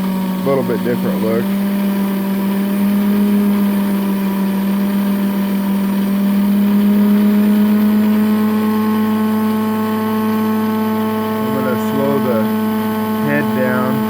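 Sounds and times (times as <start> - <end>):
electric motor humming: 0.0 - 14.0.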